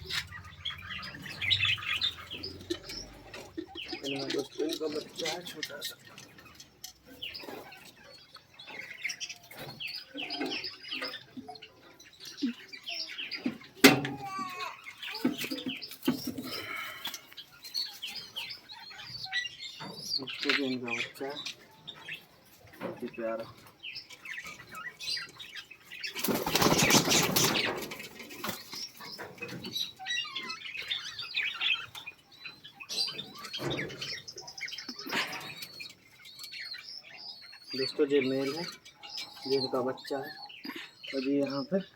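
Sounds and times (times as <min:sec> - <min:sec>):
cage birds chirping: 0:00.0 - 0:41.9
birds flapping wings: 0:26.1 - 0:28.8.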